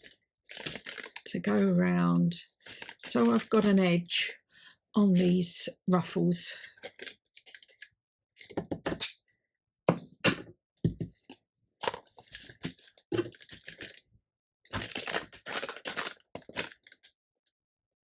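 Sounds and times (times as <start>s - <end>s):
paper crinkling: 0.0s - 1.3s, 2.6s - 3.8s, 6.7s - 8.5s, 11.8s - 14.0s, 14.7s - 17.1s.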